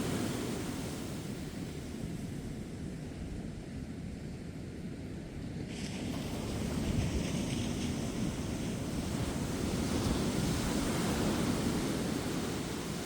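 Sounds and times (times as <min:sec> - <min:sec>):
waves breaking on a beach: 0:00.0 - 0:04.1, 0:04.7 - 0:13.0.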